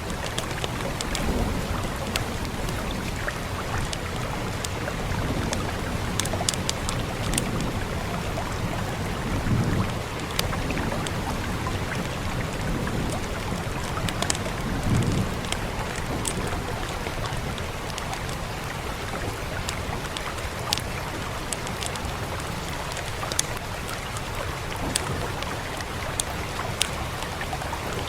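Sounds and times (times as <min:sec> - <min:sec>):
fireplace crackles and pops: 0:00.0 - 0:08.0, 0:09.5 - 0:27.5
steady rain: 0:00.0 - 0:28.0.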